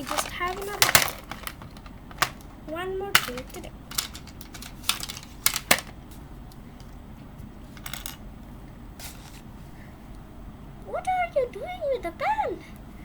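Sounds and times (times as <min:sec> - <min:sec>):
pen and tools clicking on desk: 0:03.2 - 0:05.9.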